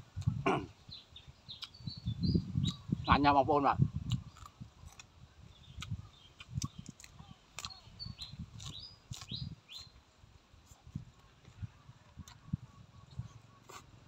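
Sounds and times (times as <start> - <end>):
birds chirping: 0.4 - 3.5, 4.2 - 10.1
chewing and lip-smacking: 4.0 - 5.1, 5.7 - 9.9
wet mouth clicks: 5.7 - 7.8.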